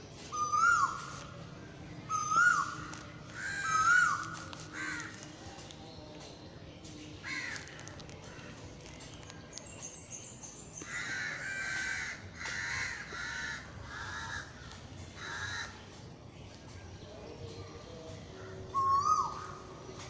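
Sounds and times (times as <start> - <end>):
bird calling: 0.2 - 1.4, 2.1 - 5.3.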